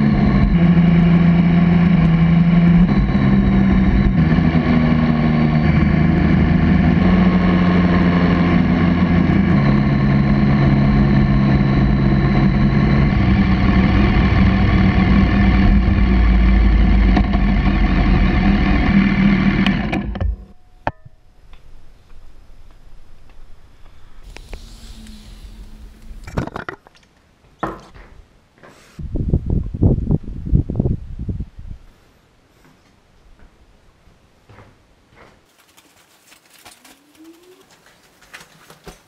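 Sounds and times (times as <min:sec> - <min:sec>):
motorcycle engine running: 0:00.0 - 0:20.5.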